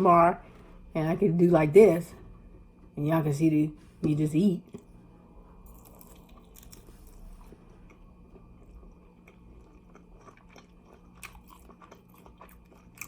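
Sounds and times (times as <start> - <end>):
person chewing crunchy food: 5.7 - 13.0.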